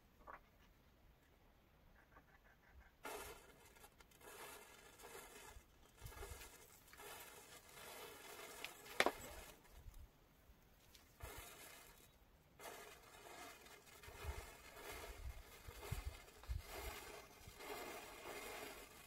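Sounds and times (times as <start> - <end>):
matches fizzing and crackling: 3.1 - 10.0.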